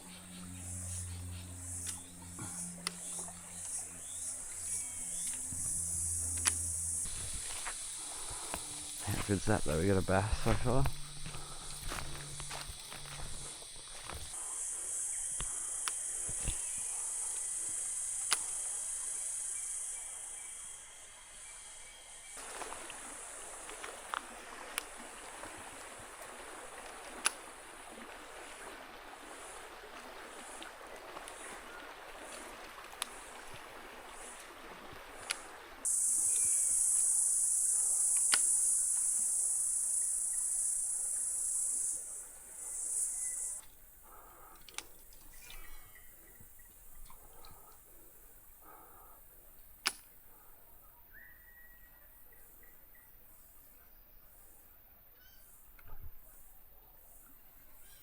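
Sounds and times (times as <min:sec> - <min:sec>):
high-pitched insect drone: 0:00.0 - 0:24.4, 0:35.8 - 0:43.6
faint sharp ticks: 0:01.8 - 0:14.4, 0:15.2 - 0:19.7, 0:23.6 - 0:24.9, 0:26.2 - 0:27.5, 0:32.3 - 0:33.5, 0:35.0 - 0:42.1, 0:43.0 - 0:45.3
sharp click: 0:38.2 - 0:38.6.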